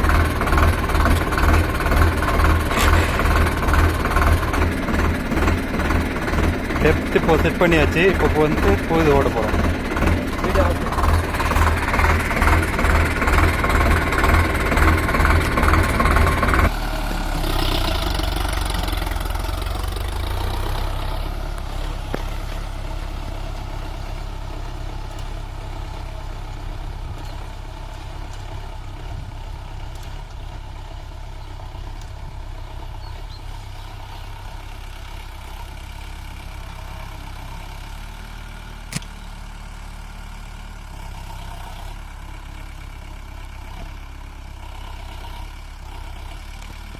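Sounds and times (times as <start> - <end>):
tractor diesel engine throbbing: 0.0 - 46.9
sharp click: 38.9 - 39.2.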